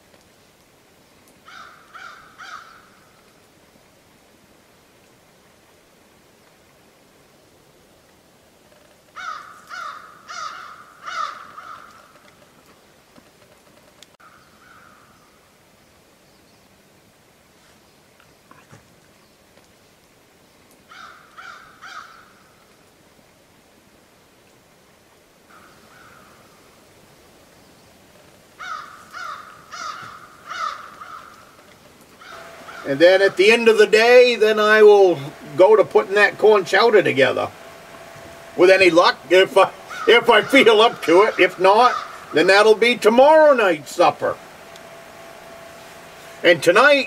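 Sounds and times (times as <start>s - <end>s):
bird cawing: 1.4s - 3.3s, 9.1s - 12.4s, 14.2s - 15.4s, 20.9s - 22.6s, 25.5s - 26.8s, 28.6s - 33.6s, 37.3s - 43.5s
bird making harsh calls: 9.2s - 12.0s, 32.2s - 33.4s, 39.7s - 42.8s.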